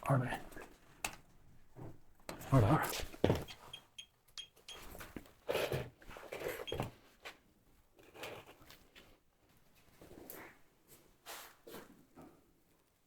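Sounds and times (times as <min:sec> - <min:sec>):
light knocks and shuffles: 0:01.7 - 0:03.8.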